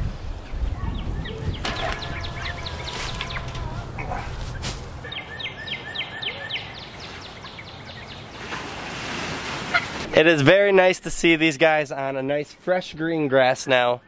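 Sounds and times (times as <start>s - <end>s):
birds chirping: 0.4s - 8.8s, 12.0s - 14.0s
low outdoor rumble: 0.7s - 5.1s.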